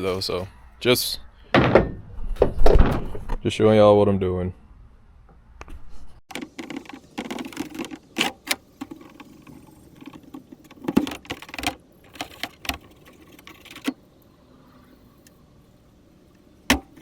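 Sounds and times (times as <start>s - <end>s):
sharp clicks and knocks: 5.6s - 14.0s, 16.3s - 17.0s.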